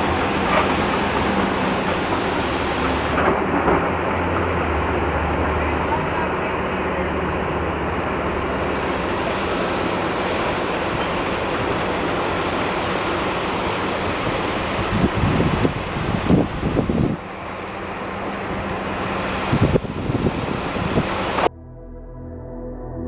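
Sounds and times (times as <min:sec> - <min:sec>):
vehicle traffic rumble: 0:00.0 - 0:11.7
wind buffeting microphone: 0:14.2 - 0:17.3, 0:18.5 - 0:21.5.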